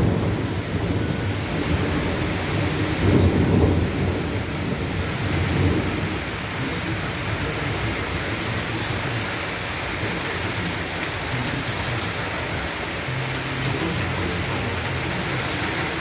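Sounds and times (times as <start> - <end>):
thunder rumbling: 0.0 - 11.6
heavy rain pouring: 0.0 - 16.0.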